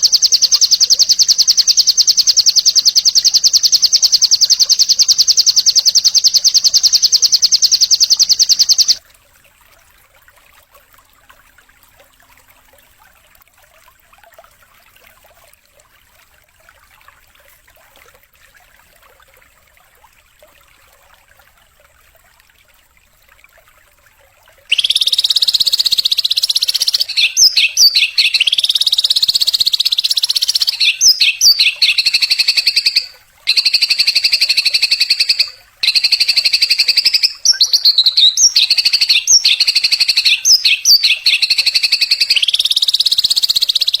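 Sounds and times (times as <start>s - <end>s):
songbird buzzing trill: 0.0s - 9.0s, 24.7s - 44.0s.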